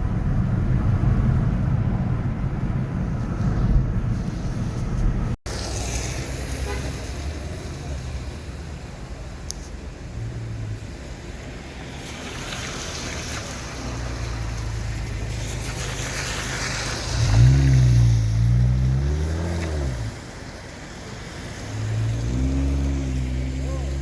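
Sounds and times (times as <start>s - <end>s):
low rumble of traffic engines: 0.0s - 24.0s
hiss of passing cars: 3.5s - 24.0s
nearby vehicle engine revving: 16.6s - 20.2s, 21.5s - 24.0s.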